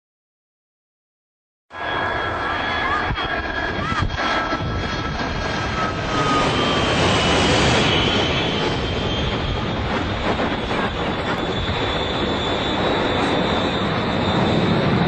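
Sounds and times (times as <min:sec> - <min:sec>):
airplane engine roaring with whine: 0:01.7 - 0:15.0.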